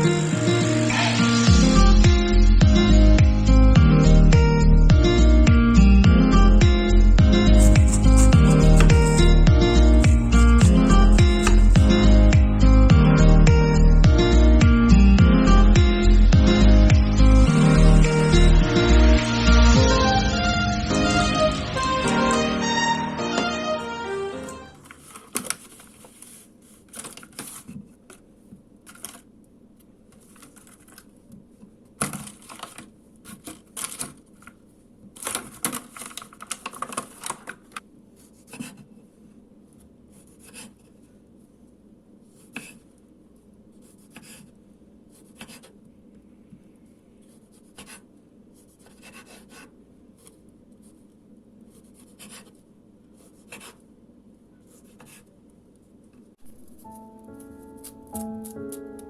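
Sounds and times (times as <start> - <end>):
rustling and scraping of objects: 7.4 - 9.3, 24.4 - 29.3, 30.1 - 43.0.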